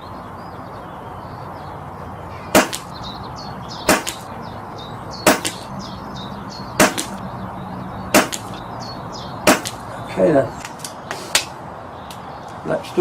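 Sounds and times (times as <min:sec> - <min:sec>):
birds chirping faintly: 0:00.0 - 0:13.0
air rifle shots: 0:02.5 - 0:03.0, 0:03.9 - 0:04.3, 0:05.2 - 0:05.7, 0:06.8 - 0:07.2, 0:08.1 - 0:08.6, 0:09.4 - 0:09.9.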